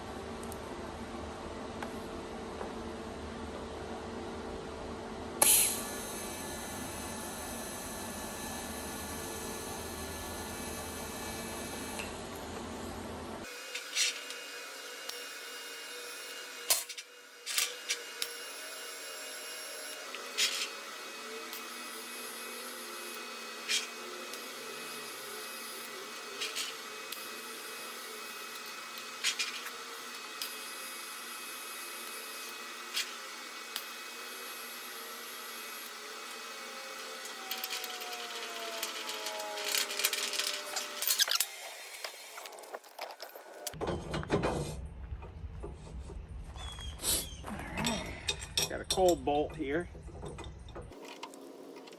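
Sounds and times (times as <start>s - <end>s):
steady machine hum: 0.0s - 13.6s
steel parts clicking and knocking: 37.2s - 45.8s, 47.7s - 51.9s.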